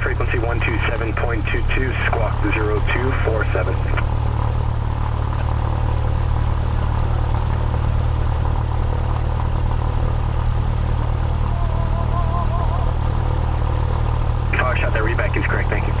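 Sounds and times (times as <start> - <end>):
airplane engine idling: 0.0 - 16.0
faint wavering tone: 11.1 - 13.7.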